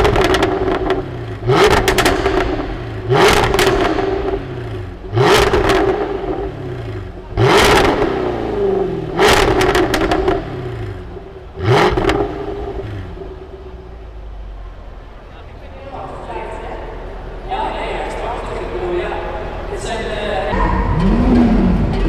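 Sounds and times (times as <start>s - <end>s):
exhaust crackles and pops: 0.0s - 22.0s
sports car engine revving: 0.0s - 22.0s.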